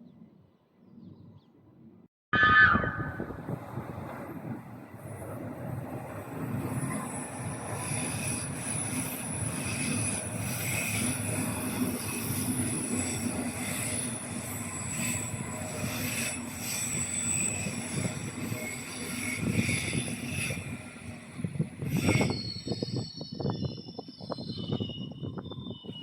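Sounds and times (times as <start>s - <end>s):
high-pitched wheel squeal: 2.4s - 3.3s, 21.8s - 26.0s
train wheels rumbling on rails: 3.4s - 26.0s.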